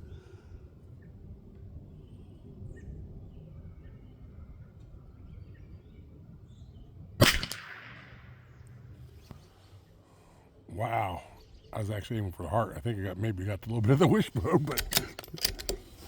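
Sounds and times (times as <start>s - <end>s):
rifle shot: 7.2s - 8.5s.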